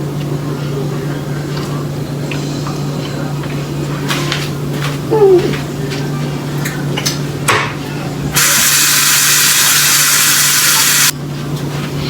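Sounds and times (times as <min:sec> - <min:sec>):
loud steady hiss: 0:08.4 - 0:11.1.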